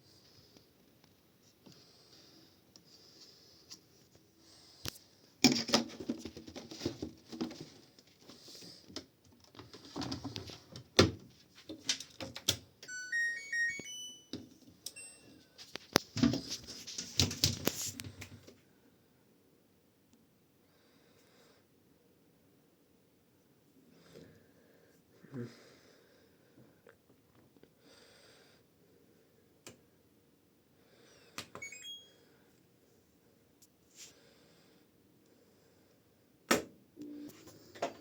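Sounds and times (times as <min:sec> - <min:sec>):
knocks and clatter of handling: 0:05.4 - 0:08.3
washing machine beep tune: 0:12.8 - 0:15.6, 0:31.6 - 0:32.2.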